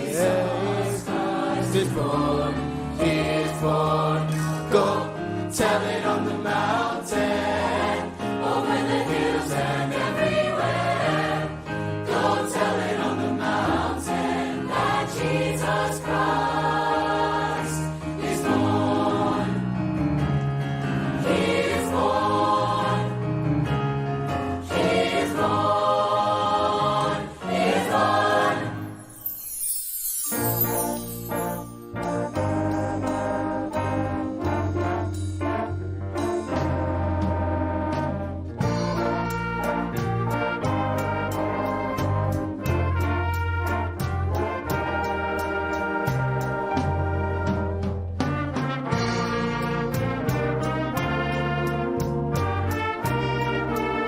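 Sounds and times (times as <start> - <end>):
choir singing: 0.0 - 19.8, 21.1 - 23.4, 24.6 - 31.4
musical accompaniment: 0.0 - 54.0.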